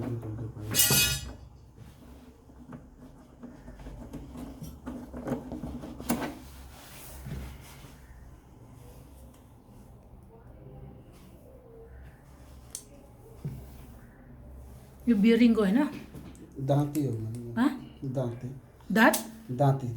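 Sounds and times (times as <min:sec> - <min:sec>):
washing machine parts clattering: 0:00.0 - 0:01.8.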